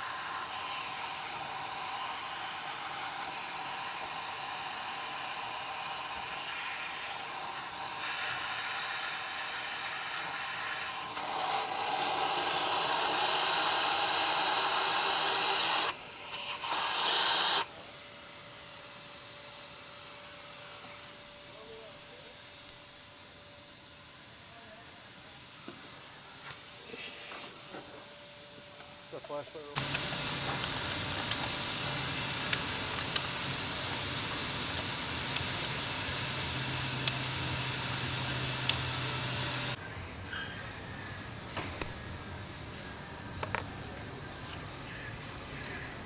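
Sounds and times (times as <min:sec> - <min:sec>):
shop vac hissing: 0:00.0 - 0:22.8, 0:24.3 - 0:39.8.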